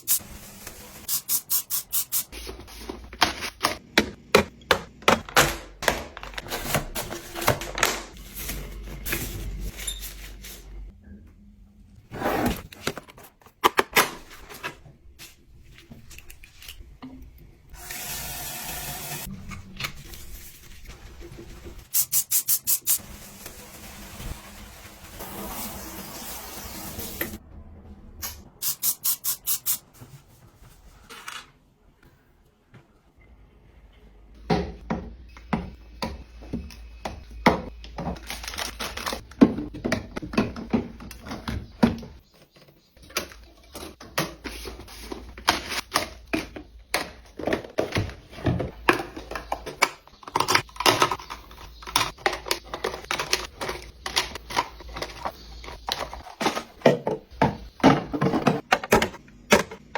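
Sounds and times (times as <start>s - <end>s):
household items clicking and knocking: 3.1s - 8.2s, 34.5s - 59.9s.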